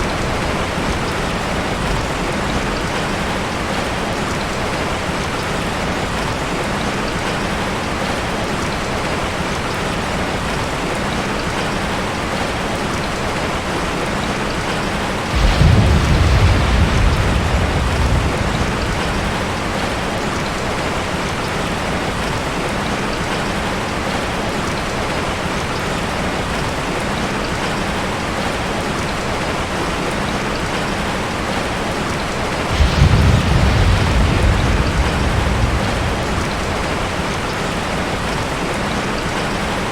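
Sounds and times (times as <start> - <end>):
thunder rolling: 0.0 - 4.1, 15.2 - 21.5, 32.6 - 39.6
rain falling: 0.0 - 39.9.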